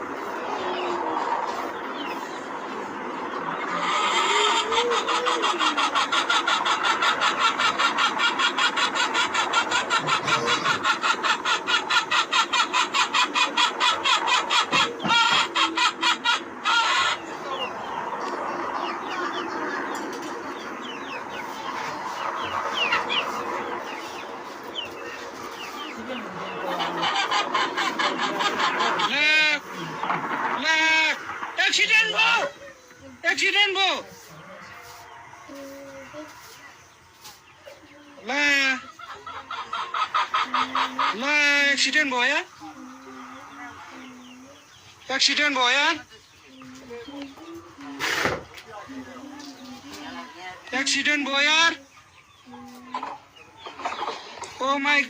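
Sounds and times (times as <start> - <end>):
chickens clucking and chirping: 0.0 - 55.0
helicopter rotor chopping: 17.3 - 34.0.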